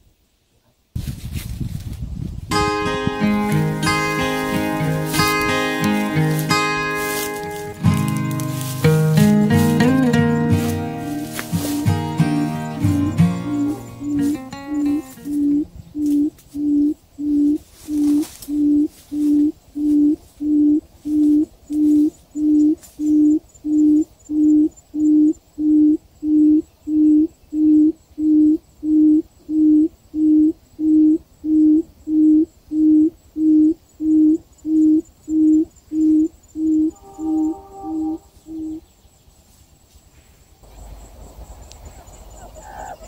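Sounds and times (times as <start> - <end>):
quail hooting calls: 8.6 - 24.0, 29.0 - 38.8, 40.6 - 43.0.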